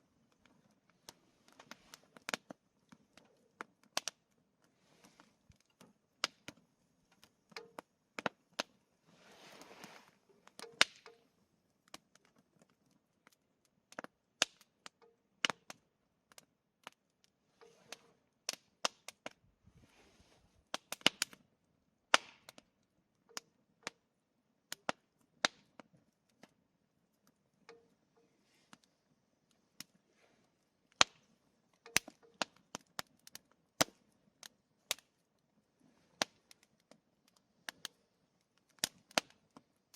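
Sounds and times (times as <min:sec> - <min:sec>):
campfire crackling and popping: 0:00.0 - 0:20.0, 0:20.6 - 0:39.9
burning wood hissing: 0:09.0 - 0:11.0.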